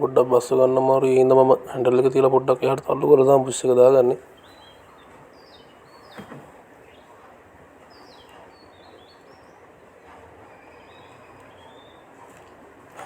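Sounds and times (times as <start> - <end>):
small birds chirping: 3.6 - 12.6.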